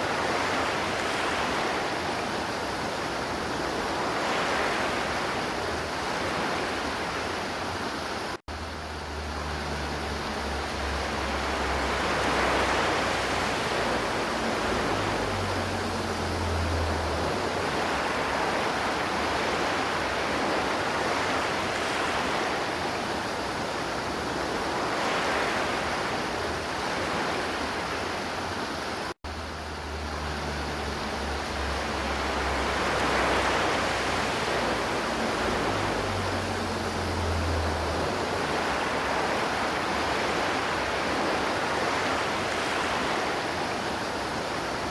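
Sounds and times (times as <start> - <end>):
river water rushing: 0.0 - 44.9.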